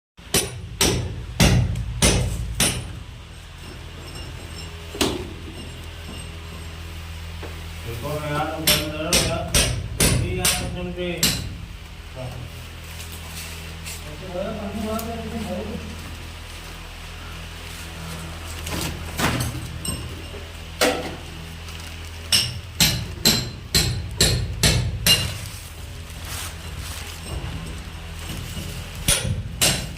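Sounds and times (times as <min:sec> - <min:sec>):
steady low hum: 0:00.2 - 0:29.9
hammer striking a wall: 0:00.3 - 0:03.0, 0:08.6 - 0:11.6, 0:22.3 - 0:25.4, 0:29.1 - 0:29.9.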